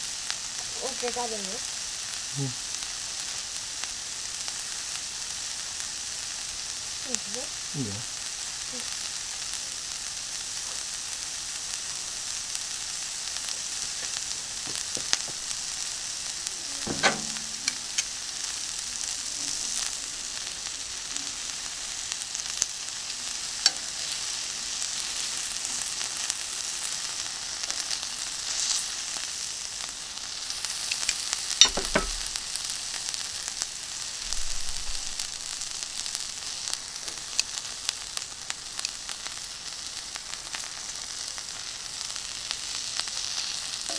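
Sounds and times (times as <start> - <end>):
beef sizzling on a griddle: 0.0 - 43.9
sharp knocks: 16.9 - 18.1, 31.6 - 32.3.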